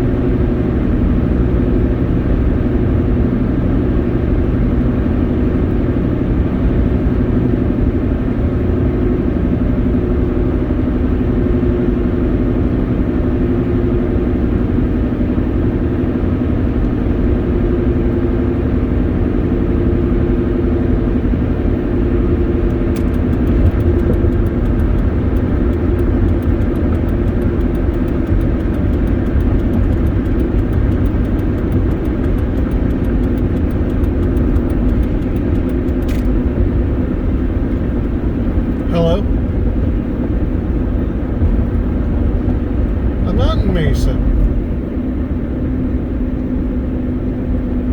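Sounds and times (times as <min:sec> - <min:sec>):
engine and road rumble in cab: 0:00.0 - 0:47.9
light rapid ticking: 0:22.5 - 0:36.8.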